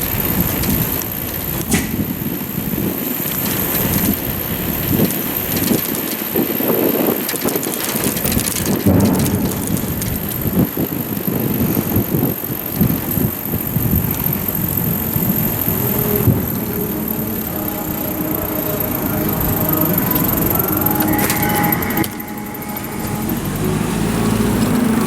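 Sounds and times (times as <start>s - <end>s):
wind buffeting microphone: 0.0s - 18.5s.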